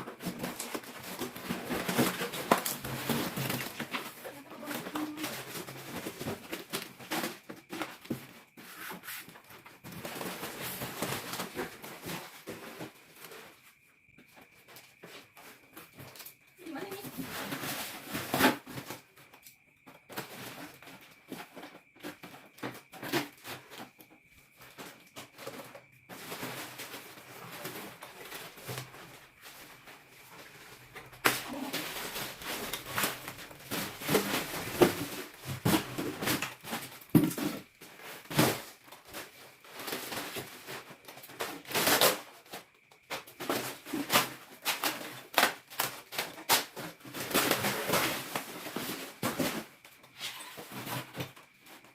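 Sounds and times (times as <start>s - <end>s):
wrapping rustling and tearing: 25.4s - 49.6s.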